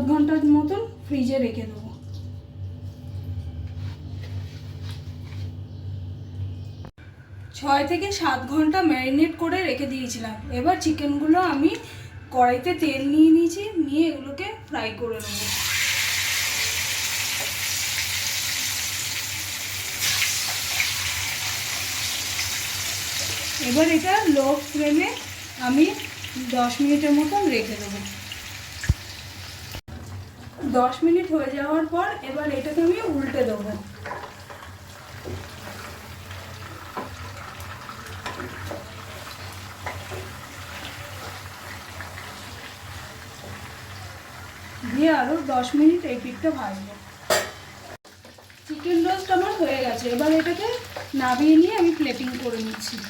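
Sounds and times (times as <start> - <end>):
chicken sizzling in hot oil: 15.2 - 31.0, 32.4 - 53.0.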